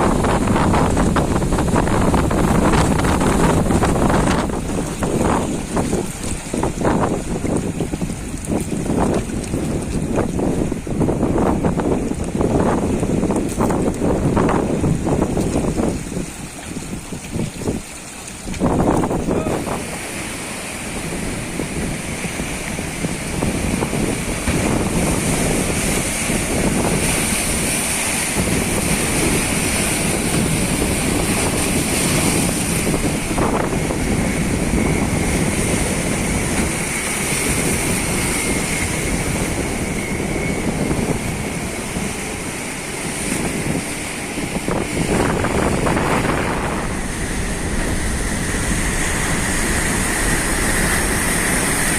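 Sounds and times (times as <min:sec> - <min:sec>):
boat motor running: 0:00.0 - 0:51.9
waves breaking around hull: 0:00.0 - 0:51.9
wind buffeting microphone: 0:00.0 - 0:51.9.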